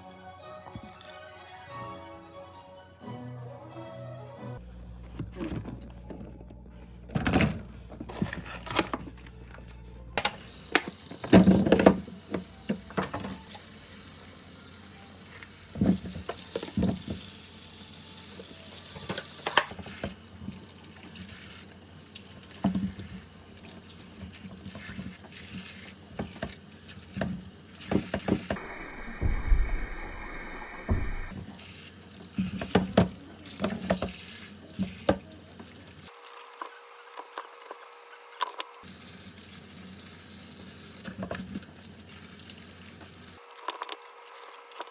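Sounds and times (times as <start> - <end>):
running water: 10.2 - 28.6, 31.3 - 44.9.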